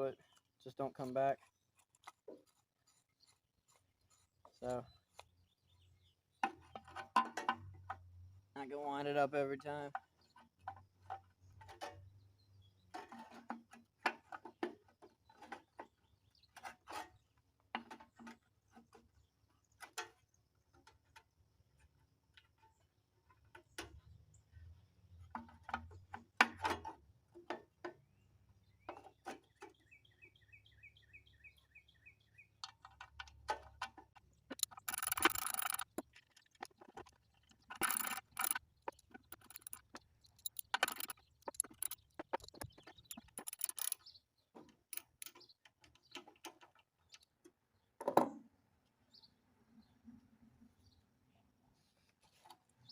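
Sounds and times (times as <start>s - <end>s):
clicks and knocks of hand work: 12.9s - 21.3s, 32.6s - 44.0s, 44.6s - 46.9s
high squeaky chirps: 34.5s - 36.0s, 36.7s - 44.1s.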